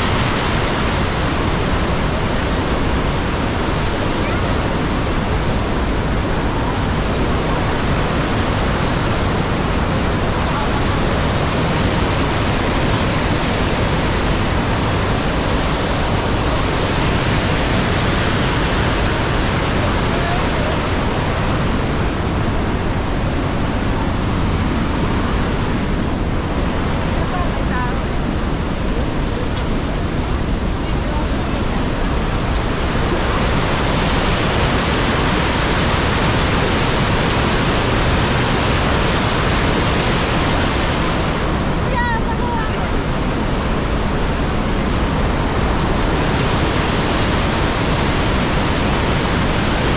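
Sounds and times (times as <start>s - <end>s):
waterfall roaring: 0.0s - 49.9s.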